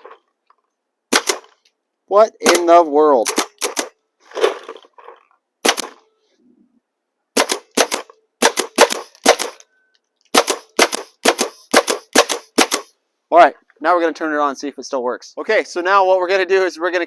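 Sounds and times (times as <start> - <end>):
paintball gun shots hitting plastic: 1.1 - 1.6, 3.3 - 4.8, 5.6 - 6.0, 7.4 - 9.6, 10.3 - 12.9.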